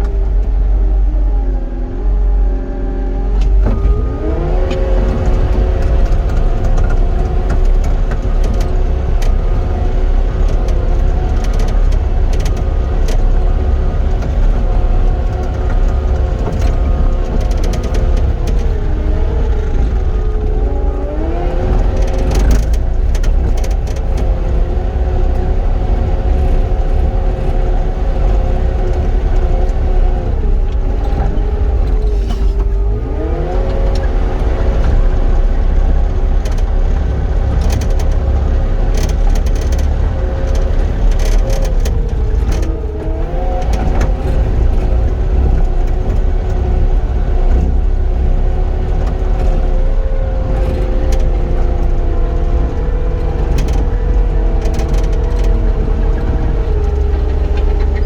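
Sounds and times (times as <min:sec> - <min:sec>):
loader diesel engine running: 0:00.0 - 0:58.0.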